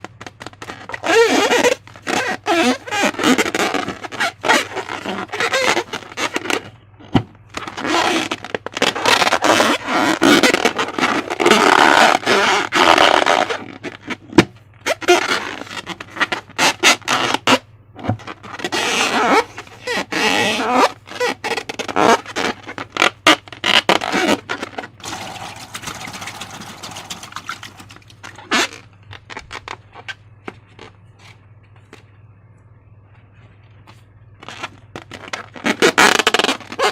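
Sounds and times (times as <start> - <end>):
slime squelching and scraping: 14.9 - 31.4.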